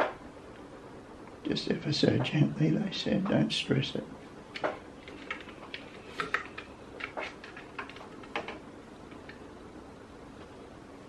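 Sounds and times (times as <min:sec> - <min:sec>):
room background noise: 0:00.0 - 0:11.0
plastic parts clicking and tapping: 0:04.6 - 0:09.4.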